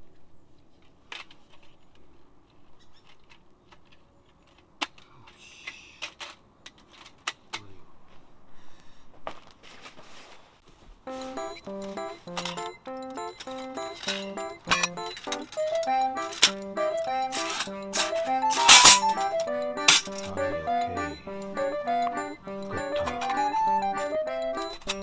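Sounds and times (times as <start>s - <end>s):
camping gear clicking and clinking: 6.0s - 7.7s, 11.4s - 25.0s.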